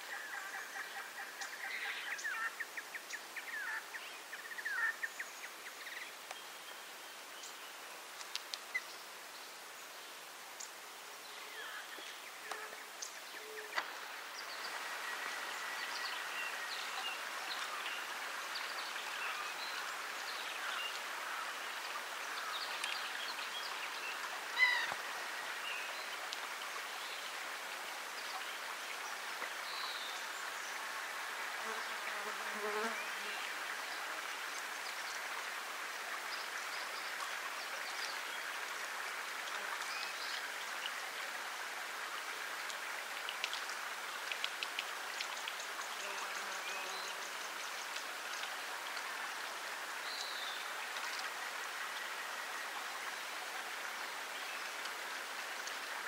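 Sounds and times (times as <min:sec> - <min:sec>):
high-pitched background hiss: 0:00.0 - 0:56.0.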